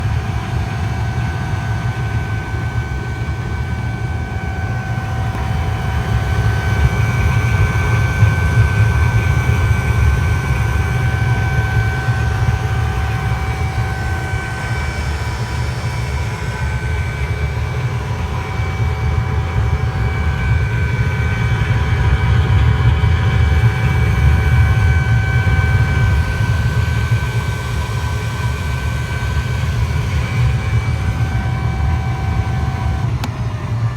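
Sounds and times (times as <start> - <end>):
high-pitched whine: 0.0 - 33.9.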